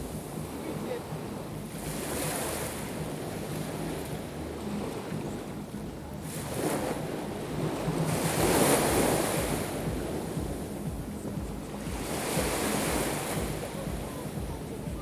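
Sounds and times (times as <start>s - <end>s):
wind on microphone: 0.0s - 15.0s
surf breaking on shore: 6.2s - 15.0s.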